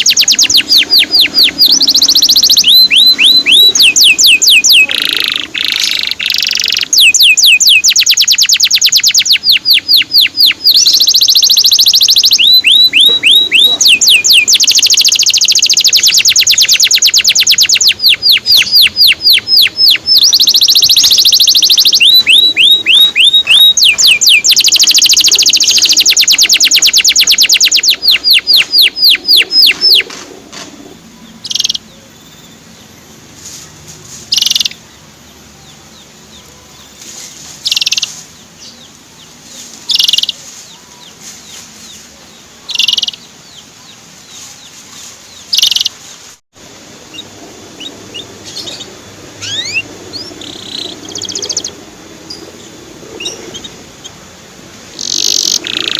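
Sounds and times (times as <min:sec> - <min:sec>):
canary chirps: 0:00.0 - 0:30.1, 0:30.8 - 0:46.3, 0:47.1 - 0:54.2, 0:54.9 - 0:55.9
canary trilling: 0:00.0 - 0:30.1, 0:30.9 - 0:32.9, 0:34.3 - 0:34.8, 0:37.6 - 0:38.8, 0:39.9 - 0:40.4, 0:42.7 - 0:43.6, 0:45.5 - 0:46.0, 0:47.1 - 0:54.2, 0:55.0 - 0:55.9.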